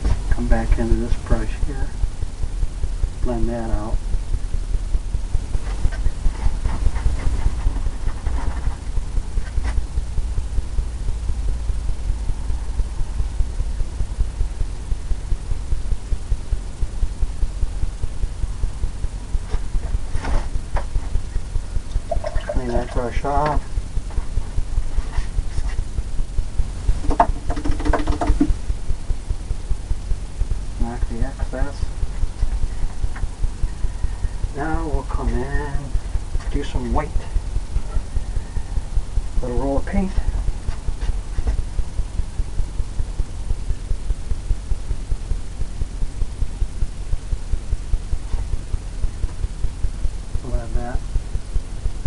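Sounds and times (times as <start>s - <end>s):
brush knocked with dull thumps: 26.9s - 28.6s.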